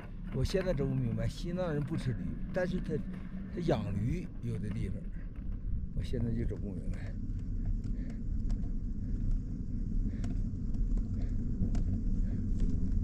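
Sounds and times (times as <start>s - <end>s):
faint clicks and rattles: 0.0s - 13.0s
wind rumble on microphone: 0.0s - 13.0s.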